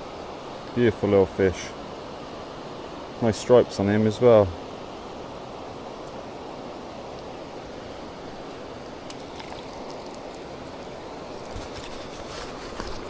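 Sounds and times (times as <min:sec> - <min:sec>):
water pouring over a weir: 0:09.1 - 0:10.8.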